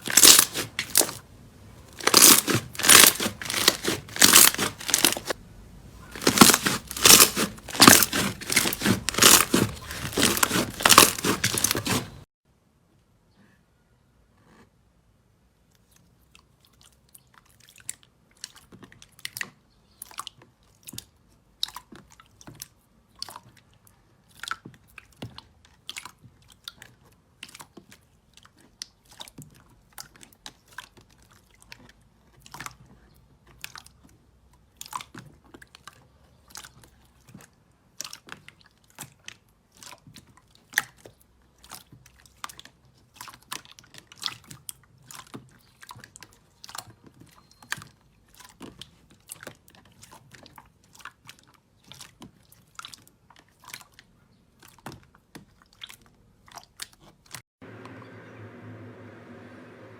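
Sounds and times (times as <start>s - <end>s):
slime crackling and popping: 0.0s - 1.2s, 2.0s - 5.4s, 6.2s - 12.2s.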